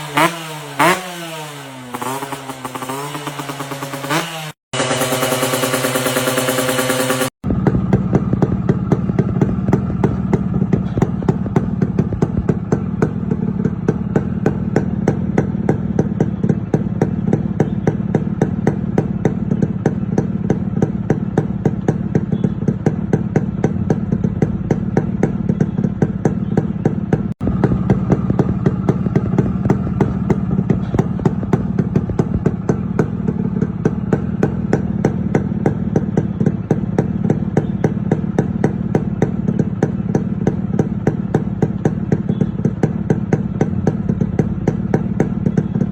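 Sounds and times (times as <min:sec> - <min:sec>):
two-stroke engine idling: 0:01.8 - 0:45.9.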